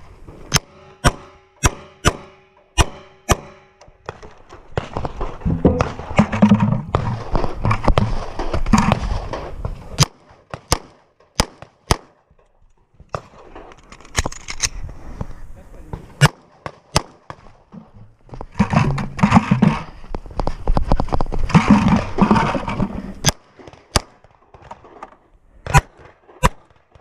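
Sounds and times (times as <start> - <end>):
handgun shots: 0.5 - 3.7
clatter and movement noise: 3.9 - 10.0, 12.3 - 15.3, 17.6 - 23.2.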